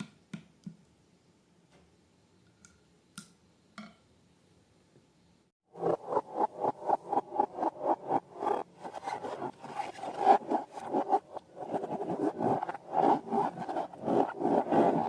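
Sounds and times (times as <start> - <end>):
rubbing and scraping strokes: 5.8 - 15.0.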